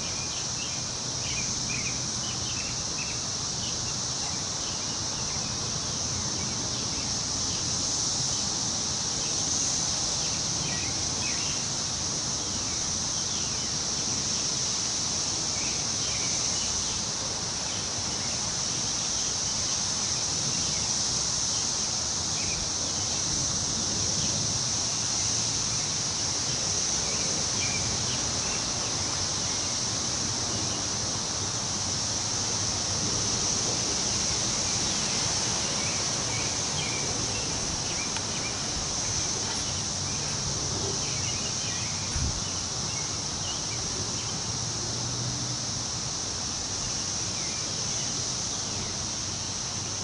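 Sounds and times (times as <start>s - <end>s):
high-pitched insect drone: 0.0s - 50.0s
wind rustling tree leaves: 0.0s - 50.0s.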